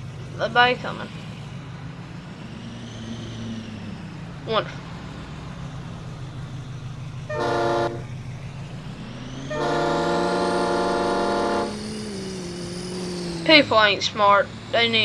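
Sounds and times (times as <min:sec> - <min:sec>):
pickup engine humming: 0:00.0 - 0:15.0
vehicle horn honking: 0:07.3 - 0:08.1, 0:09.5 - 0:11.8.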